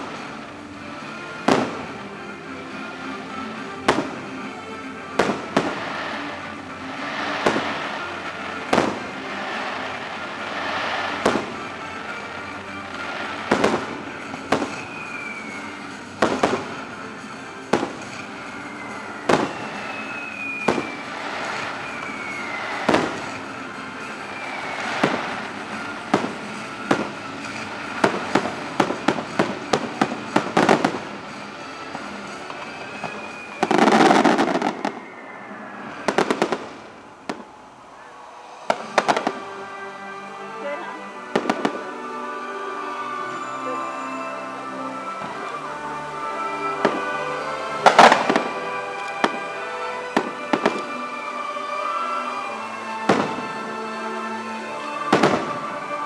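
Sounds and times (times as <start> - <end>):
fireworks bursting: 0.0 - 56.0
show music: 0.0 - 56.0
falling firework whistles: 5.2 - 39.6, 46.7 - 49.5, 51.8 - 53.6.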